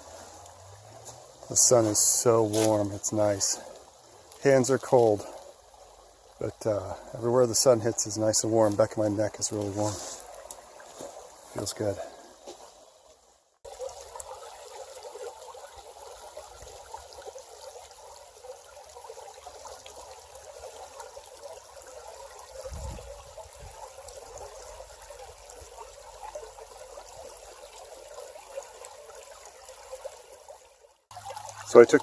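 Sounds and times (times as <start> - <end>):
creek water babbling over rocks: 0.0 - 32.0.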